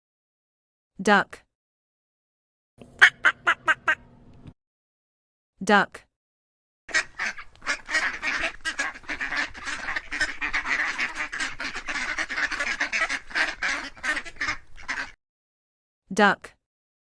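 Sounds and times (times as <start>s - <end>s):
ducks quacking: 3.0s - 4.1s, 6.9s - 15.2s.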